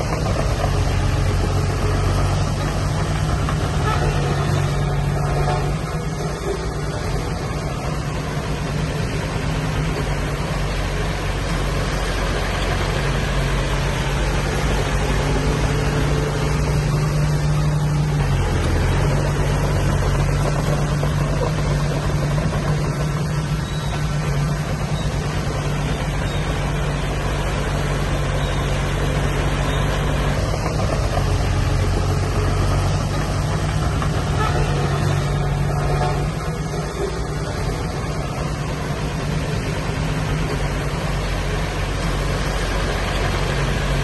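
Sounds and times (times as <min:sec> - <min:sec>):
heavy machinery diesel engine running: 0:00.0 - 0:44.0.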